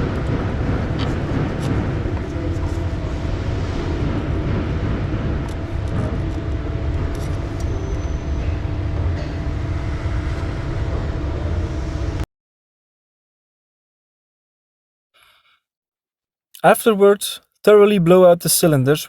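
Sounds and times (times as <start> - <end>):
low mechanical rumble: 0.0 - 12.3.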